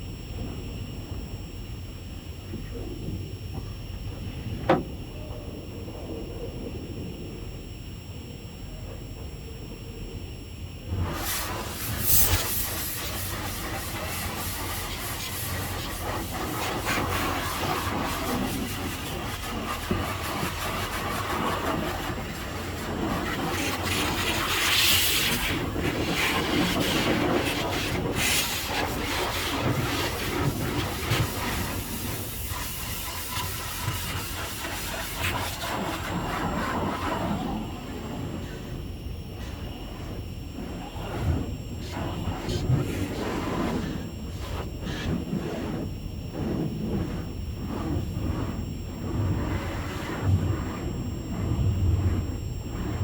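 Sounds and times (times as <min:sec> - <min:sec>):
high-pressure water spray hissing: 0:10.9 - 0:38.2.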